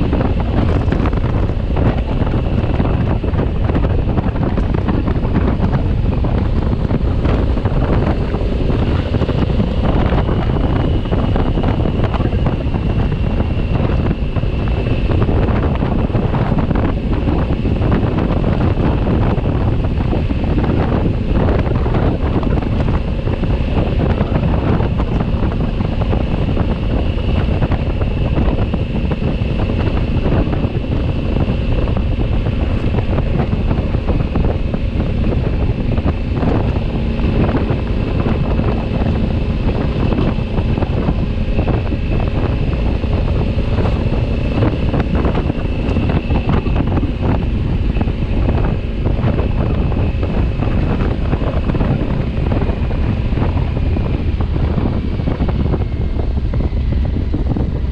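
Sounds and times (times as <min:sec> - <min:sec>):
motorcycle engine droning: 0:00.0 - 0:57.9
wind noise on microphone: 0:00.0 - 0:57.9.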